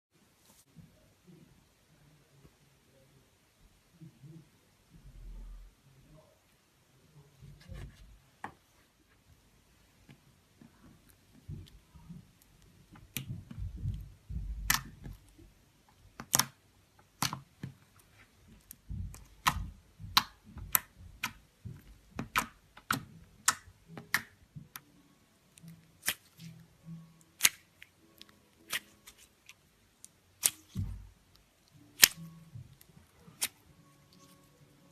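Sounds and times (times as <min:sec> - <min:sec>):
slime squishing: 0:10.7 - 0:24.8, 0:25.5 - 0:34.6.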